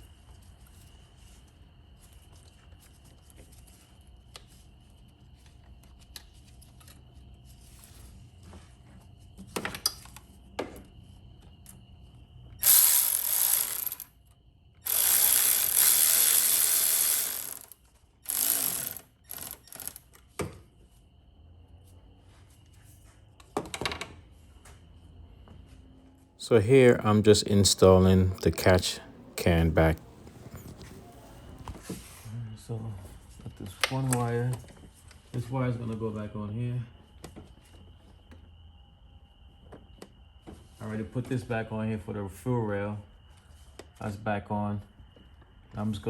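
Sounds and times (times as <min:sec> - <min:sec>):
power tool driving fasteners: 0:12.6 - 0:14.0, 0:14.9 - 0:20.0
parts clicking and knocking: 0:18.3 - 0:20.0.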